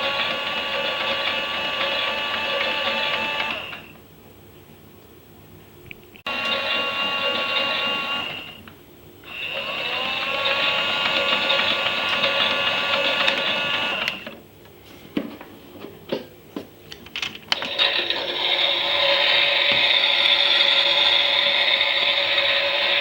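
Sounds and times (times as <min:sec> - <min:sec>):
toy washing machine motor whining: 0:00.0 - 0:03.9, 0:06.3 - 0:08.6, 0:09.2 - 0:14.4, 0:17.6 - 0:23.0.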